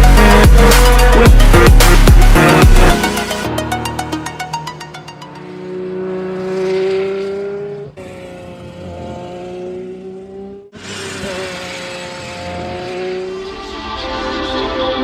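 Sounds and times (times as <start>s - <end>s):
sports car engine accelerating: 3.8s - 15.0s.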